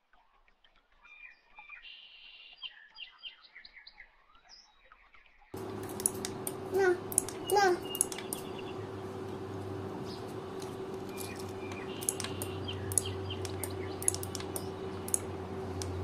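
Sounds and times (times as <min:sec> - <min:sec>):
faint small bird chirps: 0:01.0 - 0:16.0
sharp clicks: 0:05.6 - 0:16.0
steady low hum: 0:05.6 - 0:16.0.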